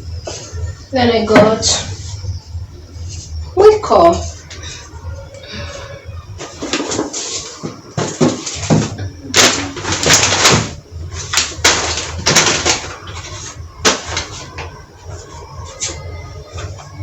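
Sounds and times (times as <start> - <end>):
plastic bags rustling: 4.2 - 17.0.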